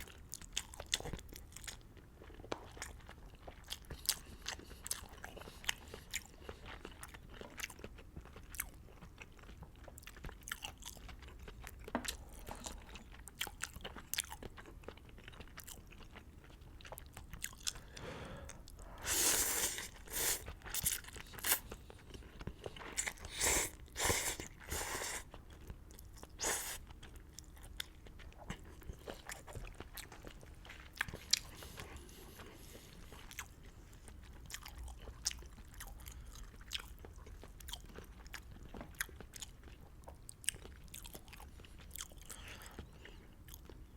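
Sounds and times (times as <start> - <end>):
chewing: 0.0 - 43.9
slurping noodles: 18.8 - 20.8, 21.4 - 21.7, 23.0 - 25.3, 26.4 - 26.8.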